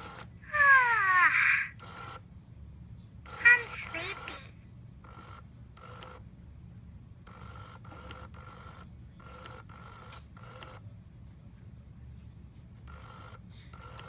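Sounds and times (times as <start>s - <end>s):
doll mechanism whirring and clicking: 12.8s - 14.0s.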